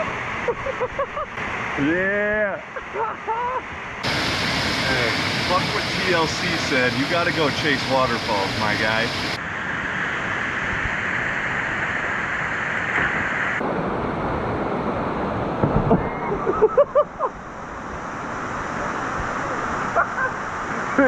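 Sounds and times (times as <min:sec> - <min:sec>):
waterfall rushing: 0:04.0 - 0:09.4.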